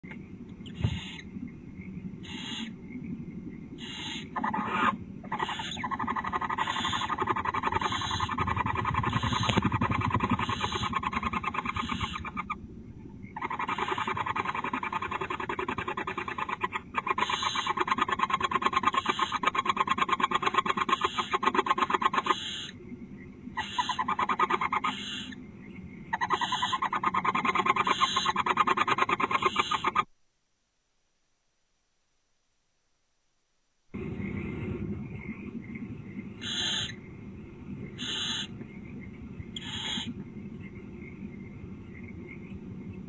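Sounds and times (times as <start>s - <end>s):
owls chittering: 0.6s - 1.3s, 2.2s - 2.8s, 3.8s - 22.8s, 23.5s - 25.4s, 26.1s - 30.1s, 36.4s - 37.0s, 37.9s - 38.6s, 39.5s - 40.2s.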